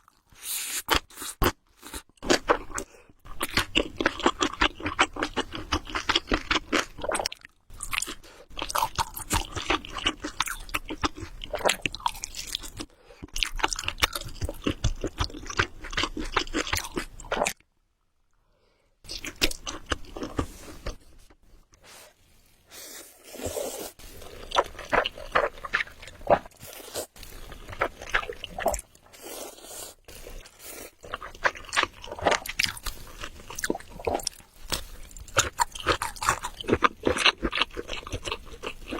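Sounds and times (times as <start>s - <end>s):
chewing noodles: 0.0s - 17.6s, 19.1s - 21.4s, 23.1s - 38.9s
crackly mouth sounds: 23.3s - 38.9s.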